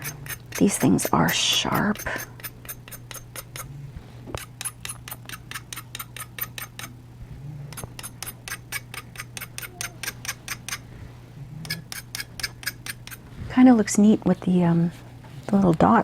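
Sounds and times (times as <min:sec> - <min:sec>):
knife blade scraping charcoal: 0:00.0 - 0:03.7, 0:04.3 - 0:06.9, 0:07.7 - 0:10.8, 0:11.6 - 0:13.3
steady low hum: 0:00.0 - 0:16.0.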